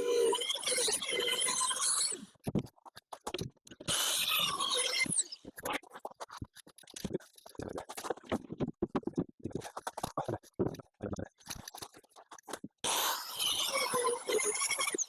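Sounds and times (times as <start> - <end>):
knocks and clicks of wood and tools: 2.4 - 3.9.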